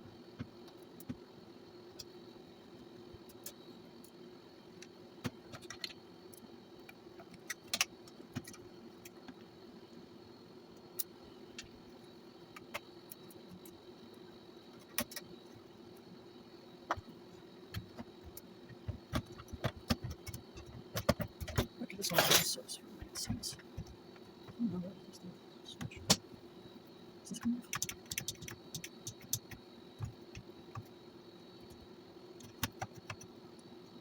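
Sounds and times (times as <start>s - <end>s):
steady low hum: 0.0s - 34.0s
small metallic clicks and taps: 4.8s - 9.5s, 14.7s - 15.3s, 17.7s - 22.4s.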